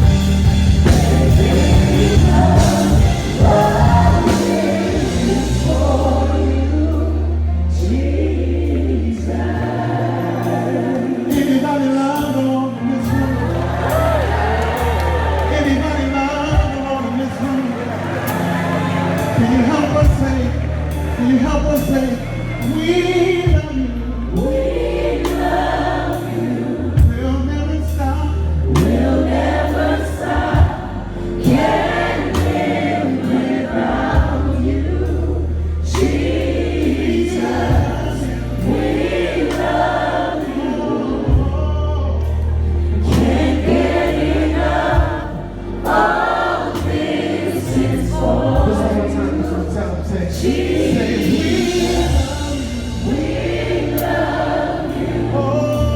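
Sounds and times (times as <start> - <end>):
drum hits: 0.0 - 5.7
gospel choir singing: 0.0 - 55.9
held bass notes: 0.0 - 55.9.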